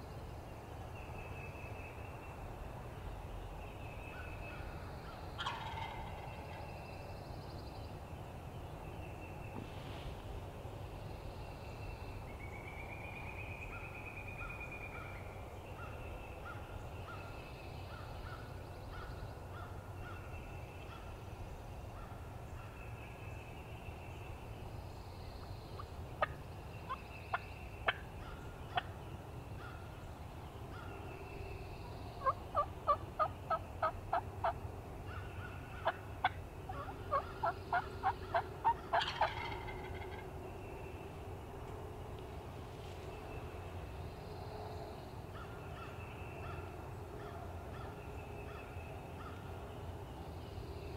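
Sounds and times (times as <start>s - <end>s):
songbirds singing: 0.0s - 50.9s
turkey yelping: 5.4s - 6.3s, 36.7s - 40.2s
turkey gobble: 5.4s - 6.6s, 32.2s - 34.6s, 35.8s - 40.2s.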